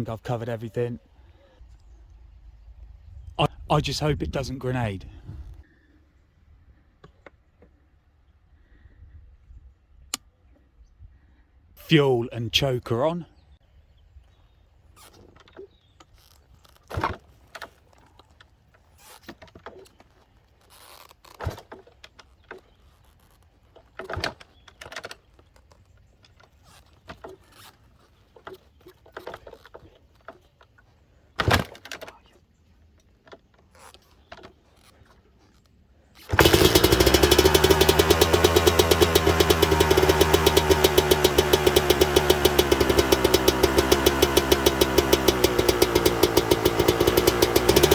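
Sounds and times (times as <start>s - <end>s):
two-stroke dirt bike engine running: 36.3s - 47.9s.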